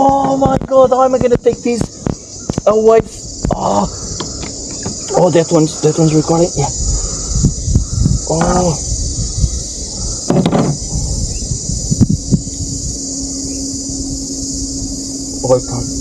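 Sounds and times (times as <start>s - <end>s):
insects chorus: 0.0s - 16.0s
low steady hum: 0.0s - 16.0s
low rumble: 6.7s - 16.0s
knocks: 10.3s - 10.8s.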